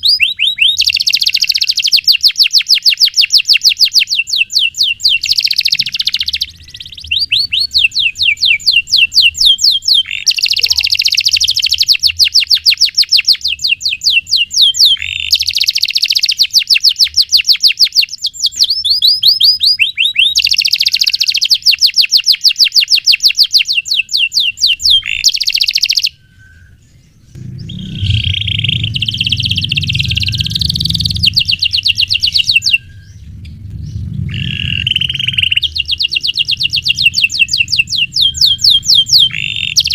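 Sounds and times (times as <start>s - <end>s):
canary singing chirps: 0.0s - 39.9s
low background hum: 26.1s - 39.9s.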